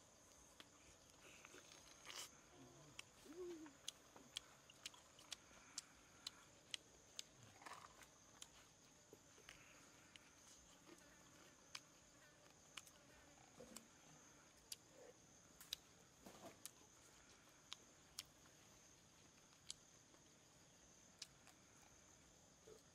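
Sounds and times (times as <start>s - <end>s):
man chewing crispy chicken: 3.7s - 9.6s.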